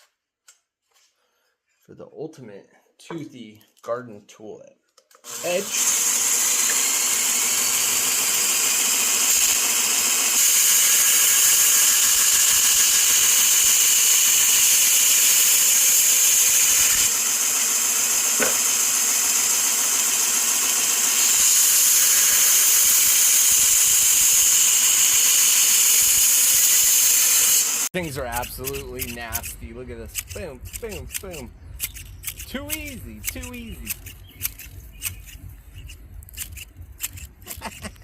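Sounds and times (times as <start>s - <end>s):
belt grinder grinding metal blade: 5.2s - 38.0s.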